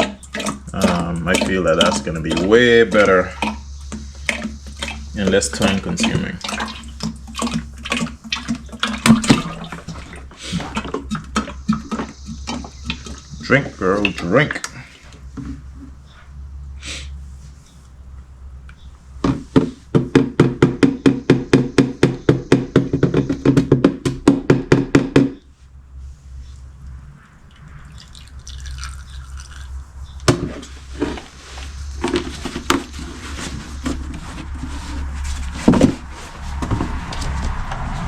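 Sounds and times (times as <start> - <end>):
scattered knocks and clicks: 0.0 - 16.0, 18.2 - 25.4
oil glugging from a jug: 0.0 - 17.2, 27.3 - 37.4.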